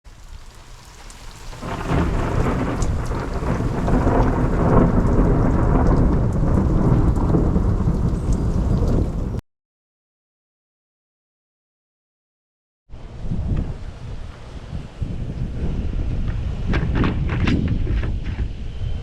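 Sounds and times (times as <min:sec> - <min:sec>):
rain falling: 0:00.0 - 0:09.4
low rumble of thunder: 0:00.4 - 0:09.4, 0:12.9 - 0:19.0.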